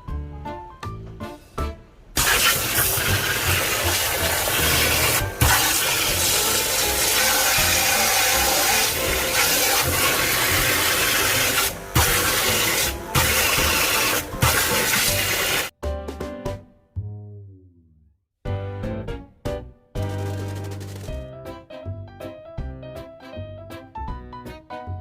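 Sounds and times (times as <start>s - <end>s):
background music: 0.0s - 25.0s
water rushing and spraying: 2.2s - 15.7s.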